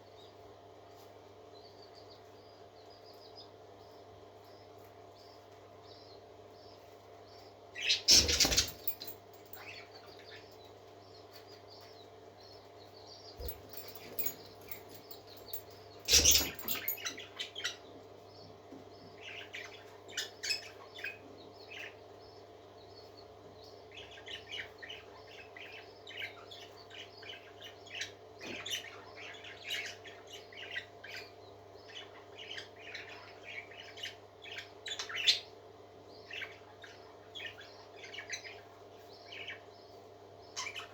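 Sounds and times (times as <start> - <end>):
parakeets chirping: 7.8 - 10.6, 13.2 - 17.9, 23.8 - 35.5, 36.2 - 40.9.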